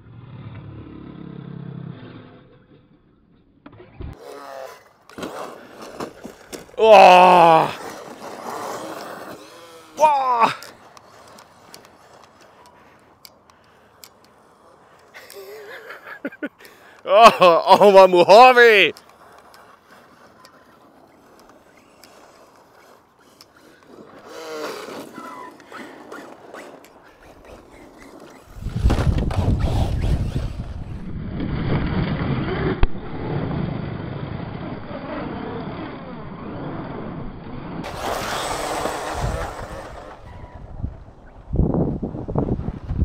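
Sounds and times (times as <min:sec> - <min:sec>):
rc truck running noise: 0:00.0 - 0:17.1, 0:17.7 - 0:43.0
rc truck motor whine: 0:03.6 - 0:15.5, 0:18.9 - 0:41.4.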